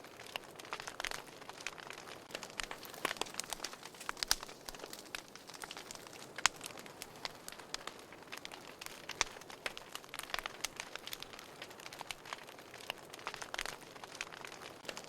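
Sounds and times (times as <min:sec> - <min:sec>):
soft hiss of fire: 0:00.0 - 0:15.0
wood fire crackling and popping: 0:00.0 - 0:15.0.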